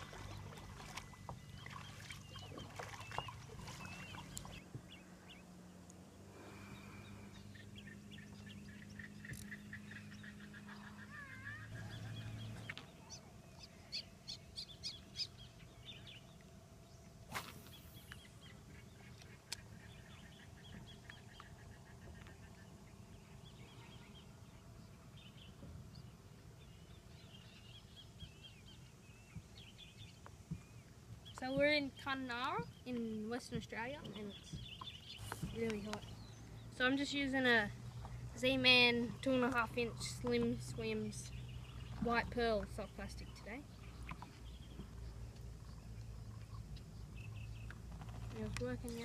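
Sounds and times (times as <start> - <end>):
low steady hum: 0.0 - 49.0
birds chirping and whistling: 0.2 - 5.4, 6.5 - 16.3, 34.0 - 37.3.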